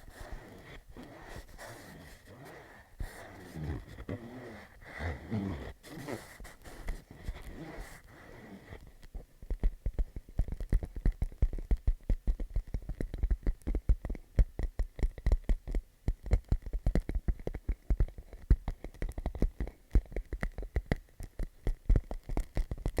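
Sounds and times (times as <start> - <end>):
fingertips tapping plastic pouch: 0.0 - 8.8.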